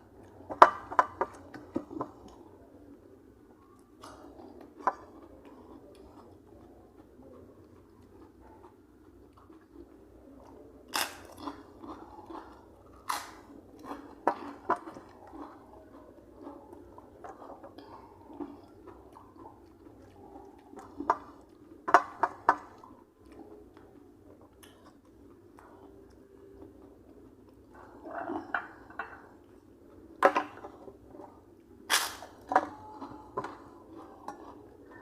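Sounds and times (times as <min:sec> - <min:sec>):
person chewing: 0:00.0 - 0:03.0, 0:03.6 - 0:35.0.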